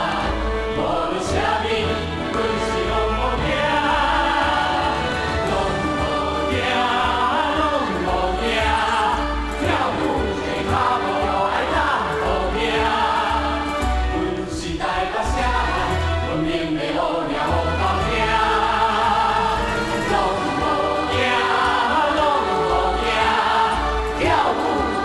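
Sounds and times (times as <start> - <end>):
choir singing: 0.0 - 25.0
instrumental accompaniment with bass: 0.0 - 25.0.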